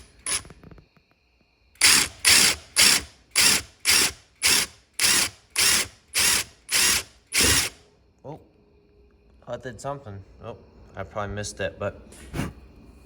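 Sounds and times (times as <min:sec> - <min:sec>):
impact driver bursts: 0:01.8 - 0:07.8.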